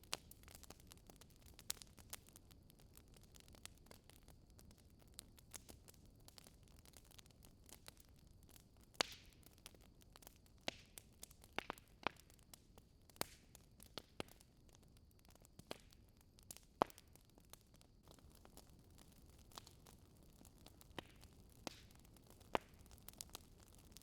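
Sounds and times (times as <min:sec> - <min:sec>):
fireplace fire crackling: 0:00.0 - 0:24.0
sharp fire pops: 0:08.9 - 0:09.5, 0:10.6 - 0:12.3, 0:18.0 - 0:24.0.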